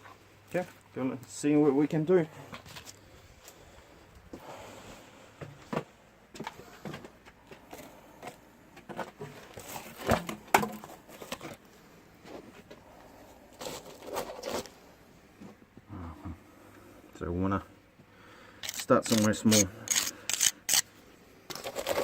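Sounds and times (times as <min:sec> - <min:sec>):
scrapes taps and rustles: 0:05.4 - 0:11.6.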